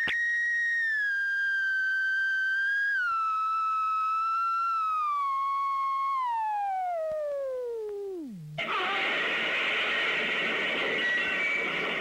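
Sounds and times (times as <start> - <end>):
falling whistle-like tone: 0.0 - 7.8.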